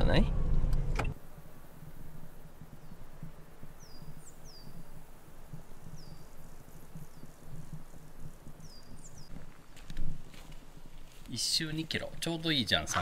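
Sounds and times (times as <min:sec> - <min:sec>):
low rumble: 0:00.0 - 0:01.1
small birds chirping: 0:01.8 - 0:13.0.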